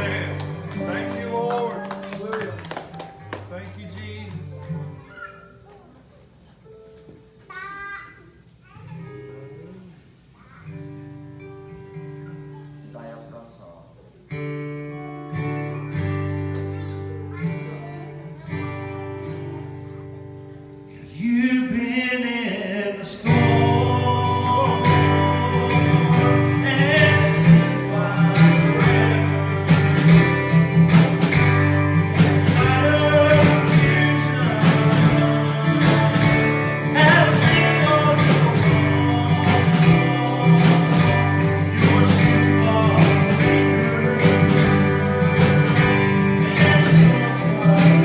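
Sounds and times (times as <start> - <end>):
acoustic guitar strumming: 0.0 - 5.6, 10.6 - 12.9, 14.3 - 48.0
person singing: 21.0 - 30.2, 32.2 - 48.0.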